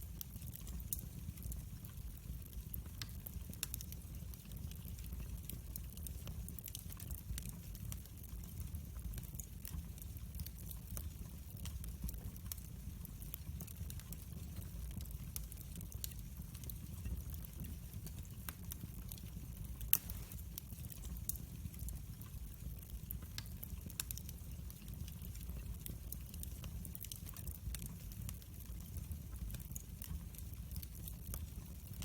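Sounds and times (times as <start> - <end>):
fire crackling and popping: 0.0 - 32.0
fire rumbling: 0.0 - 32.0.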